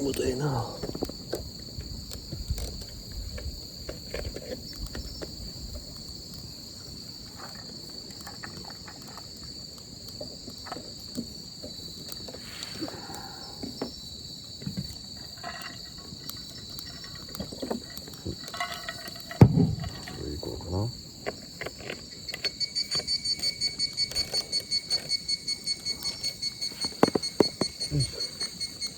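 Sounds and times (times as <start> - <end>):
insects chorus: 0.0 - 28.9.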